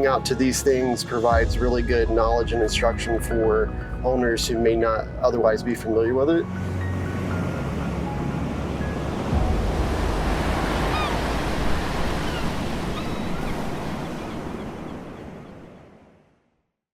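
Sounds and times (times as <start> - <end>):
ocean surf washing onto beach: 6.5 - 16.0.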